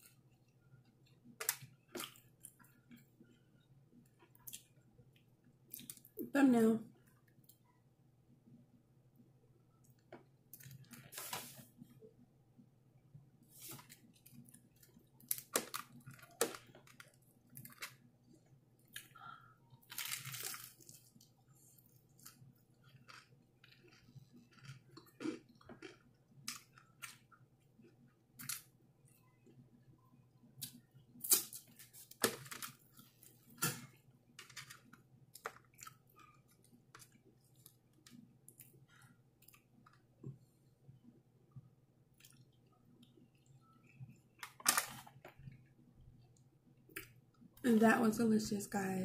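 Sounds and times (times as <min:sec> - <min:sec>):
crunching fried chicken: 0:19.8 - 0:21.3, 0:21.9 - 0:28.7
wet chewing: 0:19.8 - 0:28.6.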